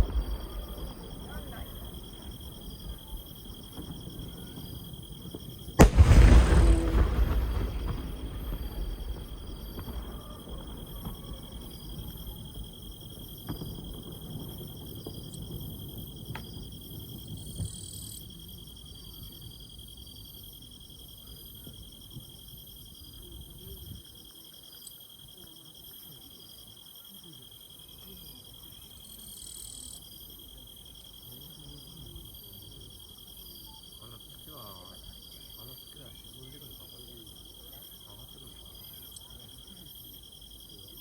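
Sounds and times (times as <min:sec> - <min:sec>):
insects chirping in trills: 0:00.0 - 0:41.0.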